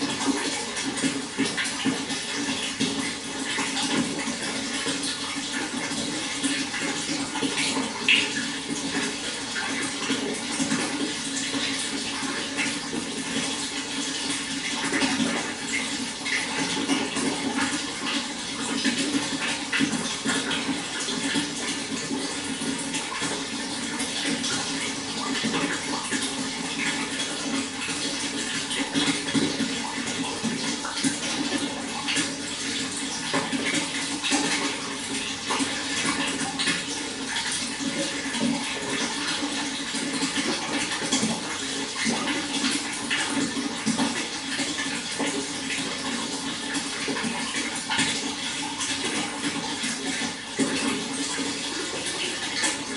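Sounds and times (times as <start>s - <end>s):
running water splashing: 0.0s - 52.9s.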